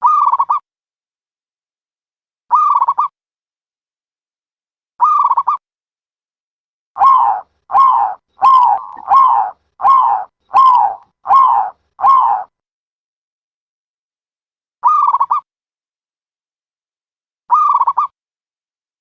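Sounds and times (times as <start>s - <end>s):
dove cooing: 7.0s - 12.5s.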